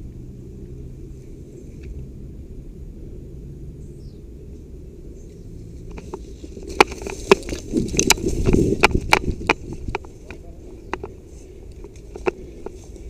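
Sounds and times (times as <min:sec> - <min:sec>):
low steady rumble: 0:00.0 - 0:13.0
footsteps crunching on dry leaves: 0:05.8 - 0:13.0.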